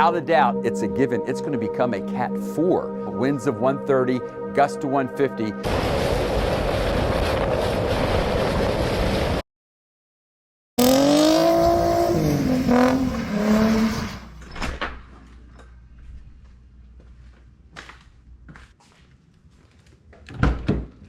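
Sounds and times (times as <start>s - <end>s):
loud rushing noise: 5.6s - 9.4s
car engine revving: 10.8s - 14.4s.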